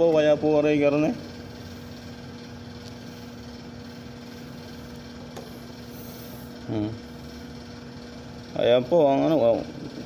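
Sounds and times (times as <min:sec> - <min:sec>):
machinery hum: 0:00.0 - 0:10.0.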